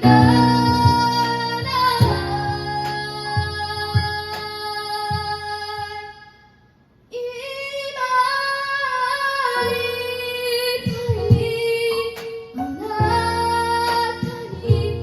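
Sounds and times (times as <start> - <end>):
low drum hits: 0.0 - 4.4
keyboard accompaniment: 0.0 - 6.2, 9.6 - 15.0.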